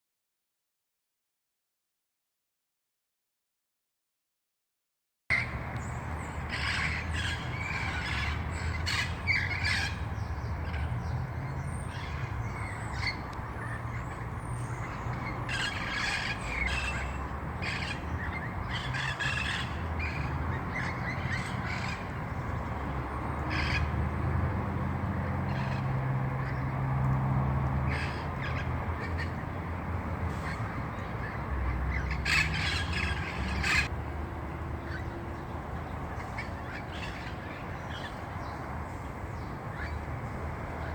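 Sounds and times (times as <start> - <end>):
parrots squawking: 6.5 - 10.0, 14.8 - 22.2, 31.2 - 33.9.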